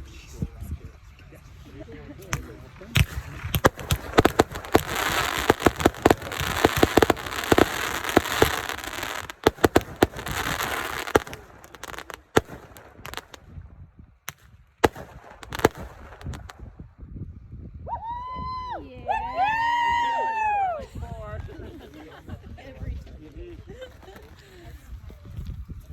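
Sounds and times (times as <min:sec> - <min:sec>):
fireworks bangs and crackle: 0:02.2 - 0:16.9.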